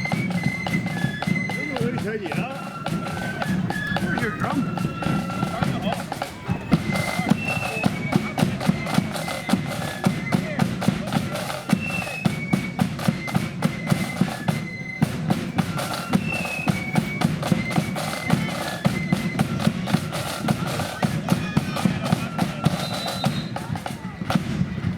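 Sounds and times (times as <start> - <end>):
flutes playing a march: 0.0 - 24.9
rapid snare drum strikes: 0.0 - 24.9
heavy bass drum beats: 1.2 - 11.8.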